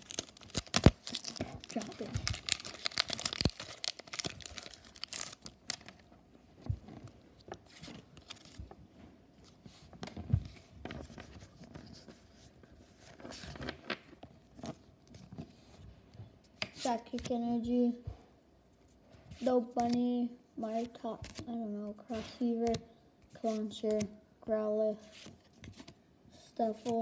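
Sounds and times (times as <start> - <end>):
foil wrapper crinkling: 0.0 - 6.0
rustling and handling: 0.0 - 17.4.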